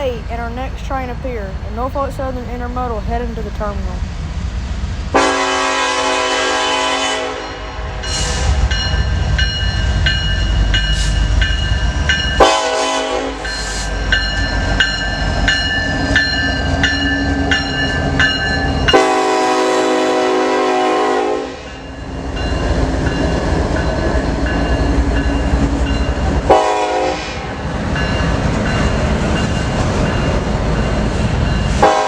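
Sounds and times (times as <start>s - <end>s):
locomotive engine rumble: 0.0s - 6.9s
locomotive horn blasts: 5.1s - 8.2s, 12.4s - 13.4s, 18.9s - 21.7s, 26.4s - 27.5s, 31.8s - 32.0s.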